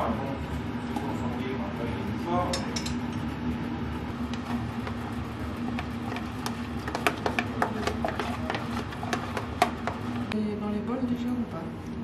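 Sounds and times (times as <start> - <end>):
steady low hum: 0.0 - 12.0
utensil scraping and tapping containers: 5.7 - 10.3.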